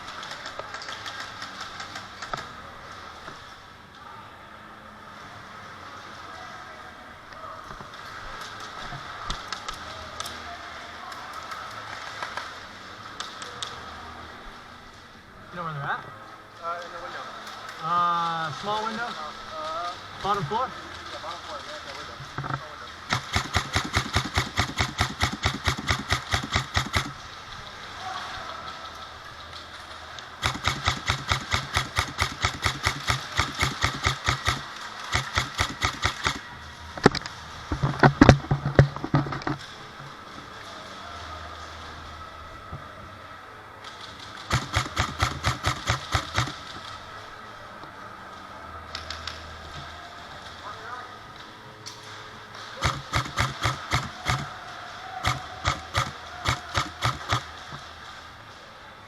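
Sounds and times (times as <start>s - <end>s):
loud cracks and knocks: 22.2s - 27.5s, 30.4s - 39.8s, 43.9s - 47.0s, 52.7s - 58.1s
airsoft gun rapid shots: 23.1s - 27.2s, 30.4s - 36.6s, 44.5s - 46.9s, 52.8s - 54.6s, 55.2s - 57.8s.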